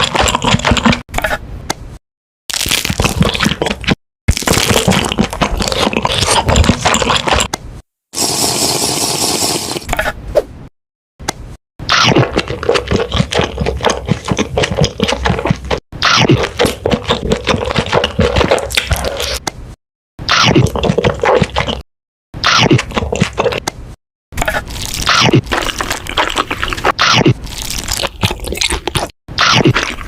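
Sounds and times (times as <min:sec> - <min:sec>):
crackly chewing and biting: 0:02.5 - 0:07.5, 0:11.9 - 0:19.4, 0:20.4 - 0:21.8, 0:22.4 - 0:23.8, 0:24.4 - 0:30.0.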